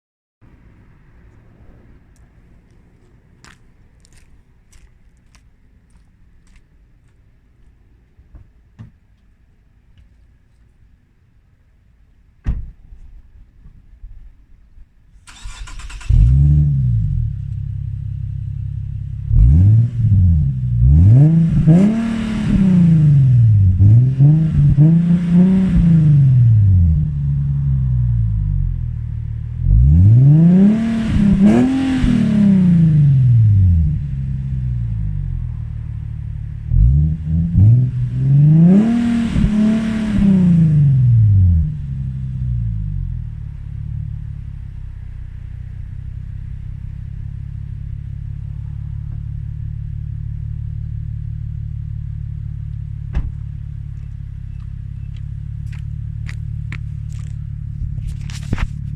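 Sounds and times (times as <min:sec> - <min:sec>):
car engine idling and revving: 0:14.0 - 0:58.9.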